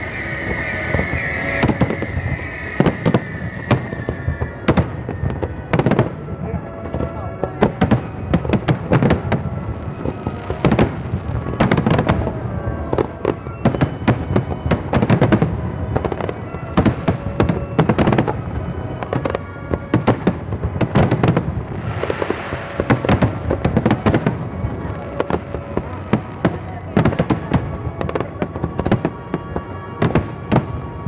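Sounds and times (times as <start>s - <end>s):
fireworks crackling: 0.0s - 31.0s.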